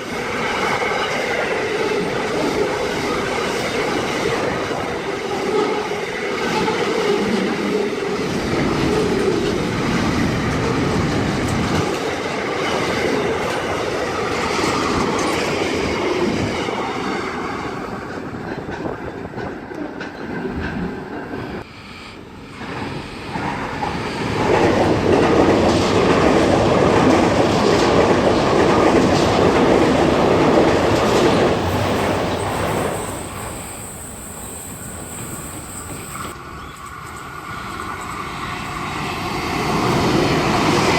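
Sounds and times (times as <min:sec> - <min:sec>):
trains passing at high speed: 0:00.0 - 0:40.9.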